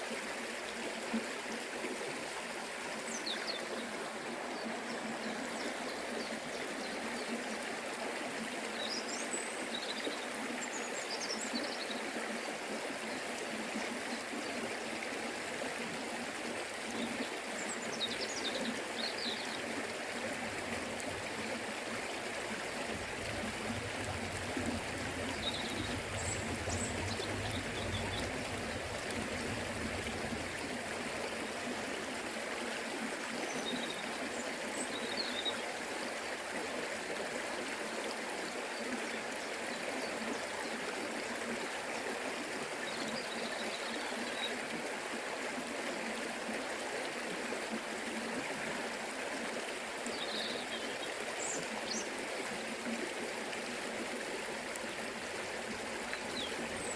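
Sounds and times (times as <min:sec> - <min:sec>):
river water rushing: 0:12.2 - 0:39.6, 0:44.1 - 0:56.9.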